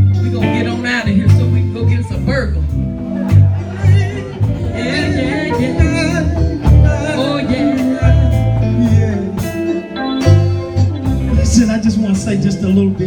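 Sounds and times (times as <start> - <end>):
heavy bass line: 0.0 - 13.0
live gospel band playing: 0.0 - 13.0
person singing: 3.5 - 11.8.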